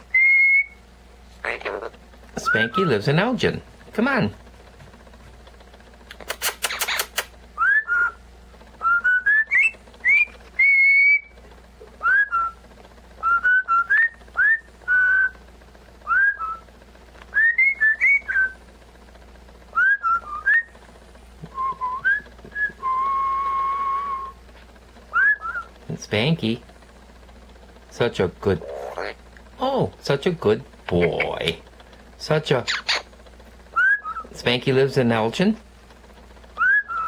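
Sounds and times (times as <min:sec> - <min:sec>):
parrot whistling a tune: 0:00.1 - 0:00.8, 0:07.6 - 0:08.2, 0:08.8 - 0:11.3, 0:12.0 - 0:12.6, 0:13.2 - 0:15.4, 0:16.0 - 0:16.6, 0:17.4 - 0:18.6, 0:19.7 - 0:20.7, 0:25.1 - 0:25.7, 0:33.7 - 0:34.3, 0:36.6 - 0:37.0.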